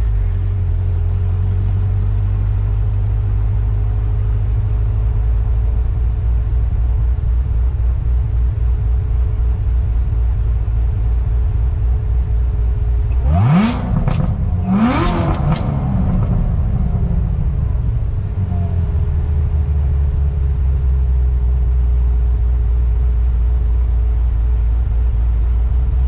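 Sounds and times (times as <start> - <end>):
car engine revving then idling: 8.7 - 21.4.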